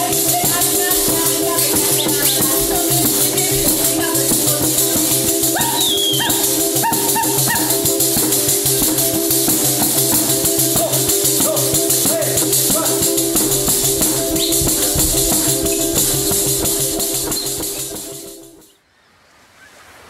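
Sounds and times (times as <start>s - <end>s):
fast shaker rhythm: 0.0s - 18.7s
drone notes: 7.7s - 18.7s
short rising melodic notes: 10.3s - 18.6s.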